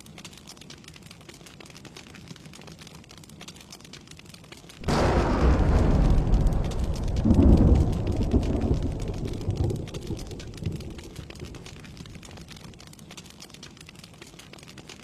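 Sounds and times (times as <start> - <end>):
steady rain: 0.0 - 15.0
thunder crack and rumble: 4.8 - 12.8.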